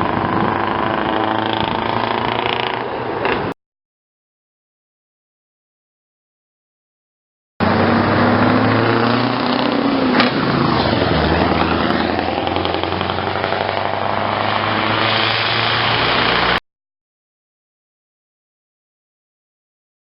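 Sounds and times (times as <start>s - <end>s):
diesel engine running loud: 0.0s - 3.4s, 7.6s - 16.6s.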